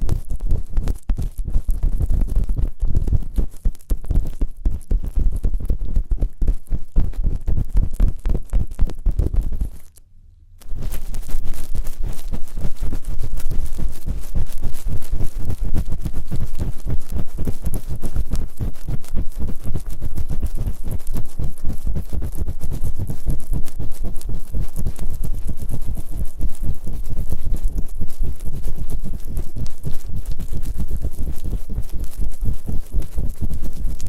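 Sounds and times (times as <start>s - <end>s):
rubbing and scratching on microphone: 0.0s - 10.0s, 10.6s - 34.0s.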